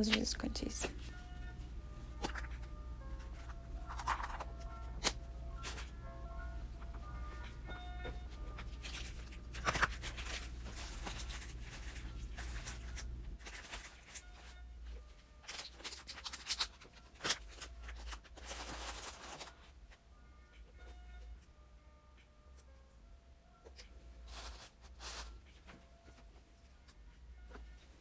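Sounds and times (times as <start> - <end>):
low steady hum: 0.0 - 13.6
packaging crinkling and rustling: 8.8 - 14.6, 15.4 - 19.7.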